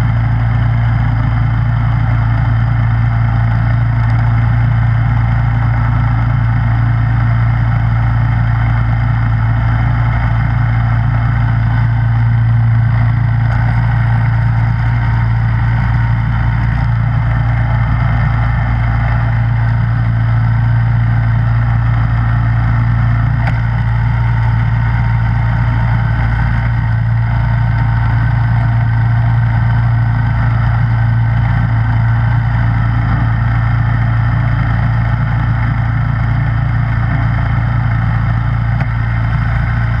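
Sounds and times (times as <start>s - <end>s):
snowblower engine running: 0.0s - 40.0s.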